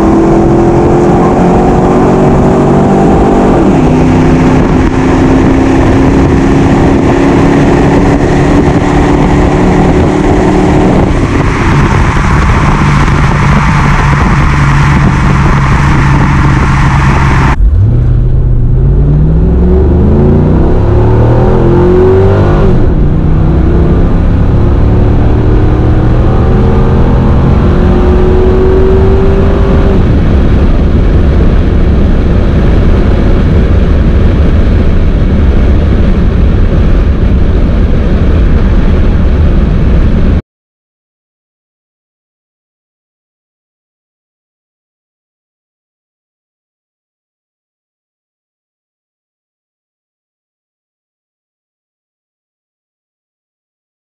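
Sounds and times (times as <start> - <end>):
car engine under load: 0.0 - 40.2
wind noise: 0.0 - 40.4.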